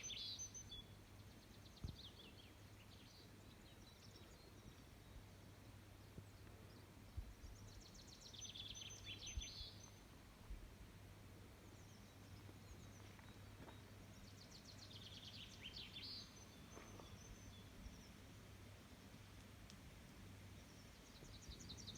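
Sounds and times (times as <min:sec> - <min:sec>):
songbird singing: 0:00.0 - 0:21.9.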